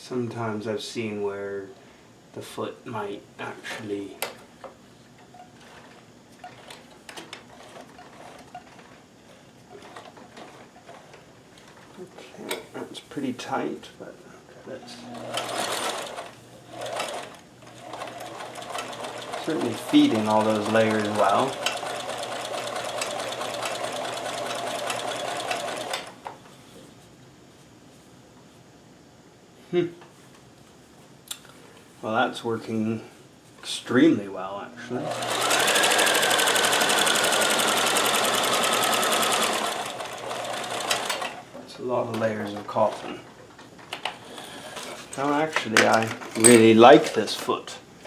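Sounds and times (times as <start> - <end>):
sewing machine clicking: 15.2 - 26.2, 35.1 - 41.4.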